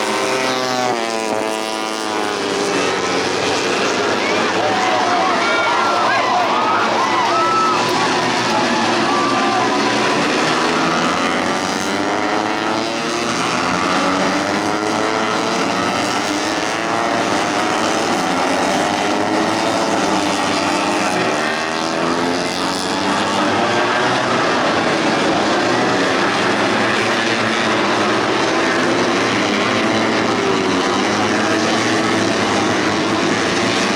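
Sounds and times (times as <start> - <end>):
motorcycles revving high: 0.0 - 33.9.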